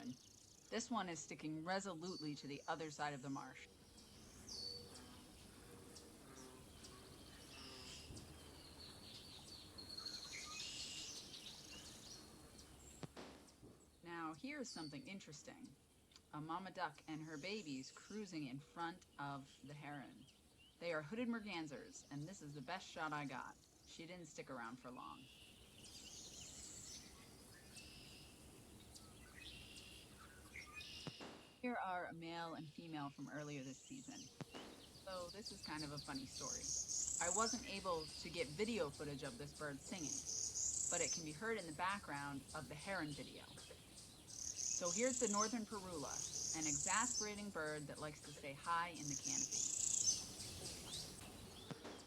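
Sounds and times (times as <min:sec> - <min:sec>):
low outdoor hum: 0:00.0 - 0:52.0
small birds chirping: 0:00.0 - 0:52.0
buzzy rising bird song: 0:03.6 - 0:14.0, 0:25.1 - 0:31.3, 0:33.8 - 0:52.0.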